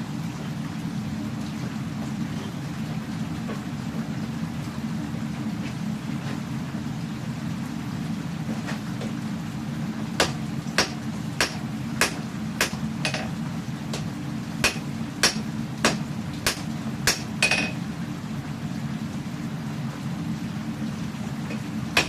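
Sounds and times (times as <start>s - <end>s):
steady low hum: 0.0s - 22.0s
hammer striking blade on anvil: 10.2s - 13.3s, 14.6s - 17.8s.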